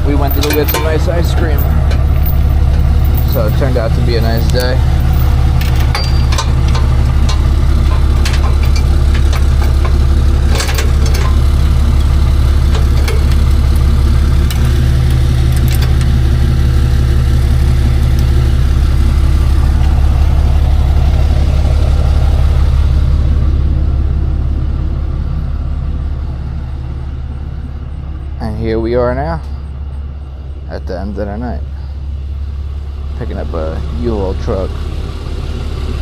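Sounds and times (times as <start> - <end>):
truck engine droning: 0.0 - 36.0
clicks and knocks: 4.4 - 16.2.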